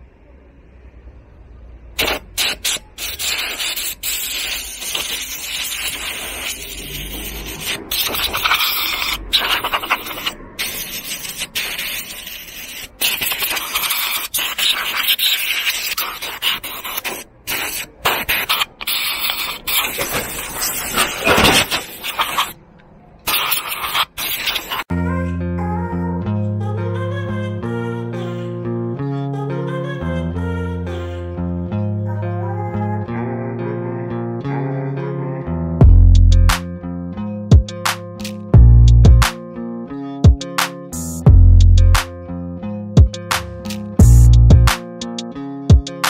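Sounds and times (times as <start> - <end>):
scrubbing vacuum cleaner parts: 2.0 - 22.6, 23.3 - 24.8.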